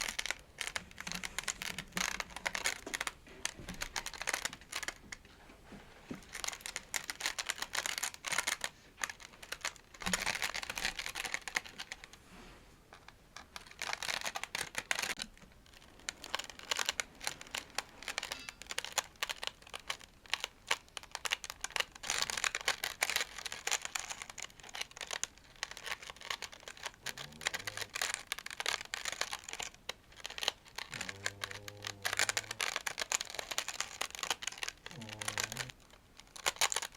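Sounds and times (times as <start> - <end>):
tapping and scratching on objects: 0.0 - 5.4, 13.0 - 36.9.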